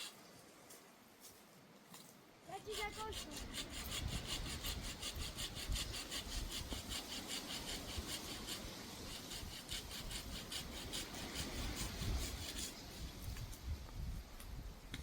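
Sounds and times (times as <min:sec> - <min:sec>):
hand saw cutting wood: 0:02.5 - 0:13.1.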